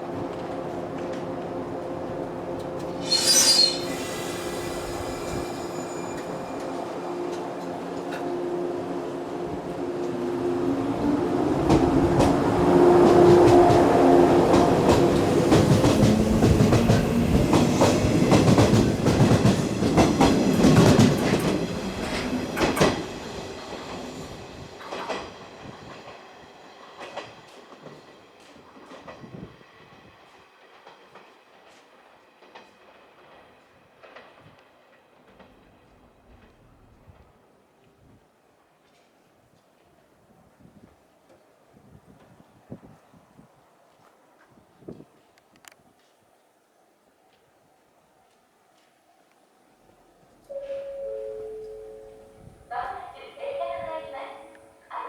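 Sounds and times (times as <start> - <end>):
brief sharp high sound: 3.0 - 6.7.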